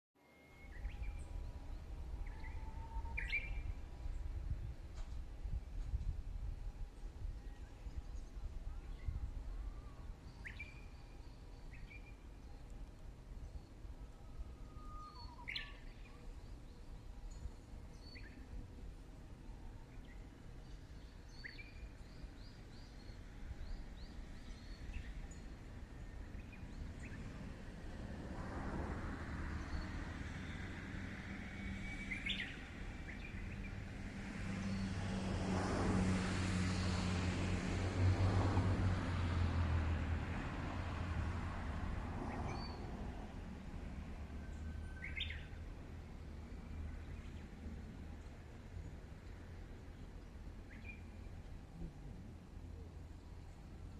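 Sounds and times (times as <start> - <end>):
bird singing: 0.2 - 4.3, 7.4 - 18.7, 19.9 - 27.4, 31.6 - 33.8, 44.4 - 45.6, 49.9 - 51.4
low outdoor hum: 0.6 - 53.9.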